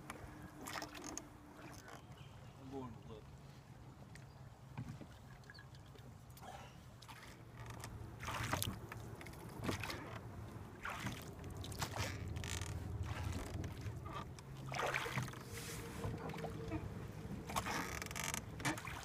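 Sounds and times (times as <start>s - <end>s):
paddle swishing in water: 0.0s - 6.2s, 6.8s - 19.0s
low background rumble: 6.2s - 19.0s.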